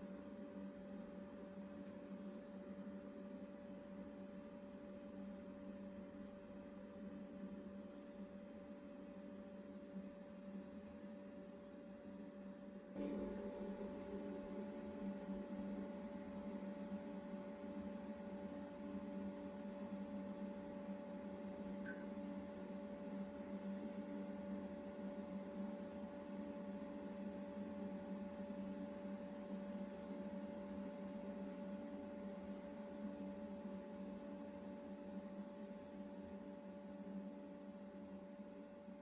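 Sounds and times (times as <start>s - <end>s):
small click: 21.8s - 22.3s.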